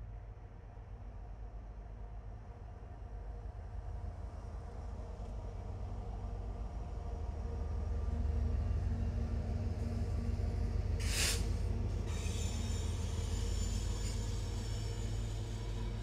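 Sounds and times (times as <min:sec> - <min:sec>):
diesel locomotive engine rumble: 0:00.0 - 0:16.0
loud hissing burst: 0:11.0 - 0:11.5
wheels squealing on rail: 0:11.0 - 0:16.0.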